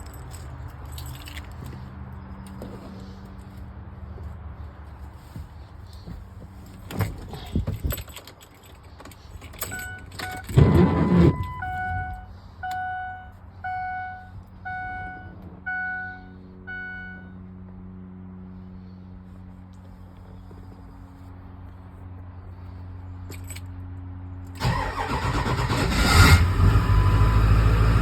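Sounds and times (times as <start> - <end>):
keys jangling in ignition: 0.0 - 3.6, 6.6 - 12.8, 23.2 - 23.8
low steady hum: 5.9 - 24.9
dashboard warning chime dinging: 9.6 - 17.4.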